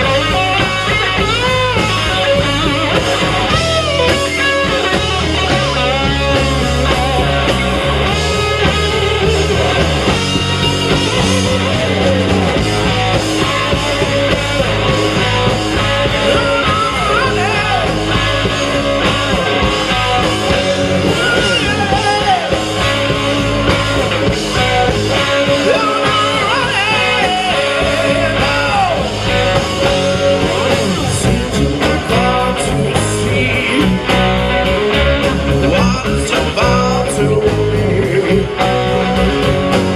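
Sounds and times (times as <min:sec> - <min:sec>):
bass guitar: 0:00.0 - 0:39.9
electric guitar: 0:00.0 - 0:39.9
person singing: 0:24.6 - 0:34.2, 0:35.6 - 0:38.9.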